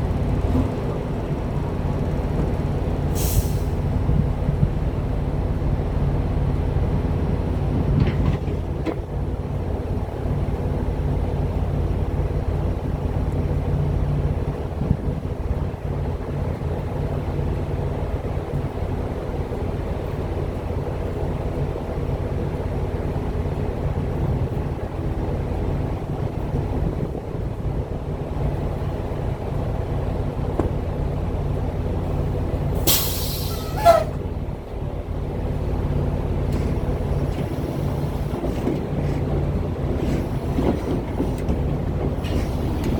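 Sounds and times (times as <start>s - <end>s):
truck engine and road drone: 0.0s - 42.9s
loud air hiss: 3.2s - 3.8s, 32.8s - 34.2s.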